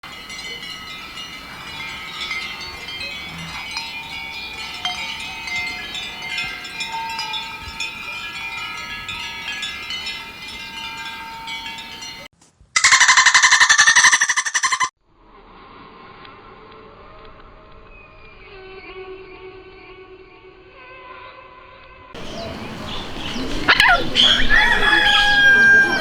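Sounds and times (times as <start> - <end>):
tinkling chimes: 0.0 - 12.3, 22.2 - 26.0.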